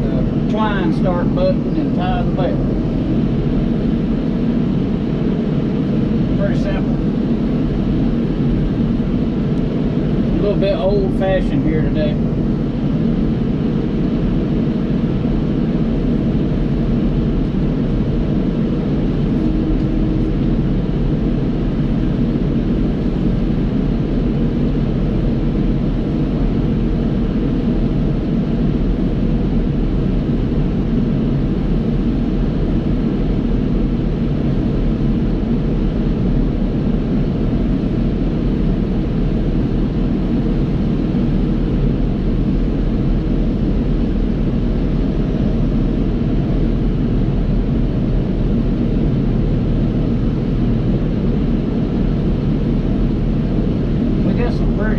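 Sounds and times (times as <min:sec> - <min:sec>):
tractor diesel engine running: 0:00.0 - 0:04.4.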